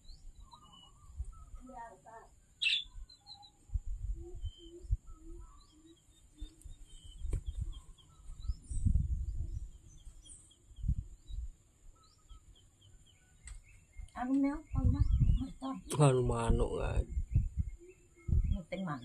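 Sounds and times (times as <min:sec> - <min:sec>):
low rumbles on microphone: 0:03.7 - 0:05.5, 0:06.7 - 0:10.1, 0:10.8 - 0:11.5, 0:14.5 - 0:18.7.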